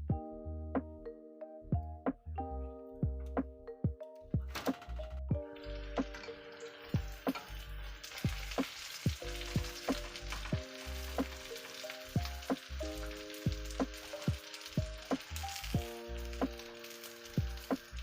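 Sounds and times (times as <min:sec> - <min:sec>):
background music with chords: 0:00.0 - 0:18.0
food sizzling in a frying pan: 0:05.6 - 0:18.0.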